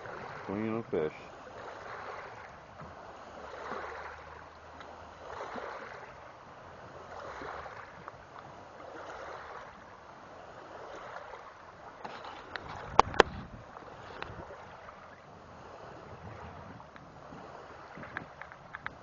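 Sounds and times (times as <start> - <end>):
small waves lapping: 0.0 - 19.0
faint clicks: 18.1 - 19.0.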